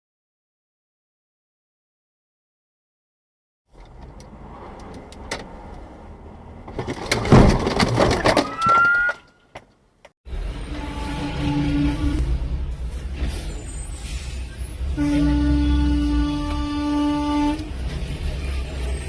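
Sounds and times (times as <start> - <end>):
vehicle running noise: 3.7 - 8.4, 10.2 - 19.0
vehicle collision crunch: 6.5 - 9.8.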